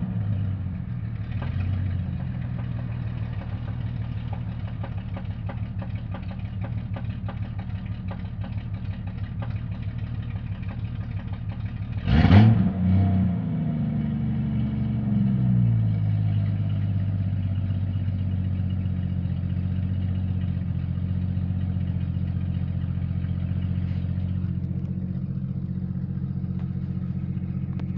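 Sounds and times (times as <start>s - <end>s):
engine revving: 0.0s - 5.2s, 11.9s - 16.8s
car engine idling with rattle: 0.0s - 27.9s.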